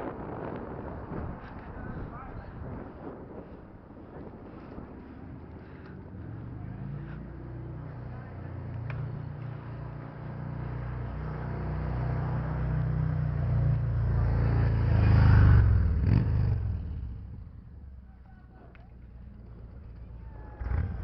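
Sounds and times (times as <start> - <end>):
car passing by: 6.2 - 17.0.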